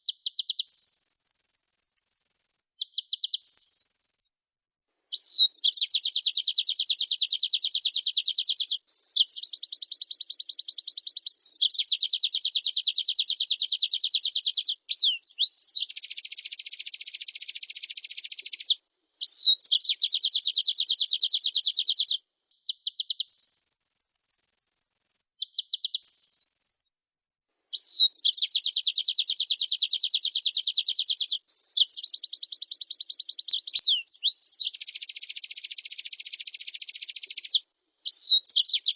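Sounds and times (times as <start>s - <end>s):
bird twittering trills: 0.3s - 2.6s, 3.2s - 4.3s, 23.2s - 25.2s, 25.8s - 26.9s.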